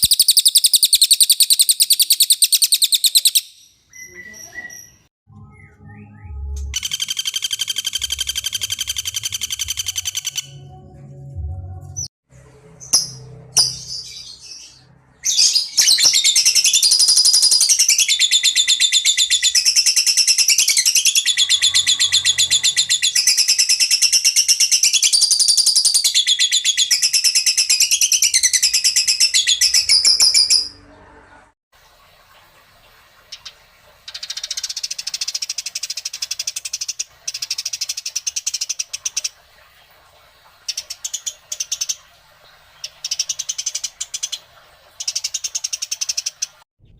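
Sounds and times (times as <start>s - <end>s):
songbird fast chattering song: 0.0s - 5.7s, 6.7s - 10.6s, 33.4s - 39.4s, 42.8s - 46.6s.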